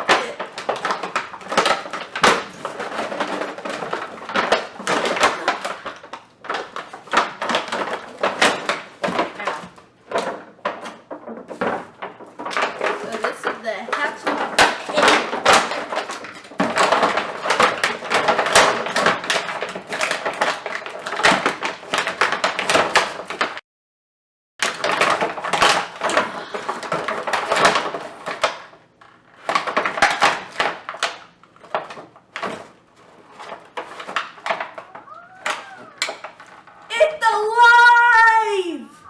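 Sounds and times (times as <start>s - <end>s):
toy packaging being pulled open: 33.5s - 37.0s.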